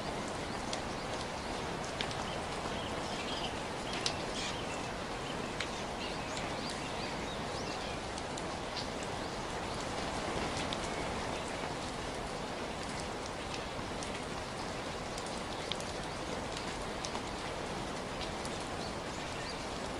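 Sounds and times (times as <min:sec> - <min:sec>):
birds chirping: 0:00.0 - 0:09.9
rain hiss: 0:00.0 - 0:19.9
water drip ticks: 0:00.0 - 0:19.9.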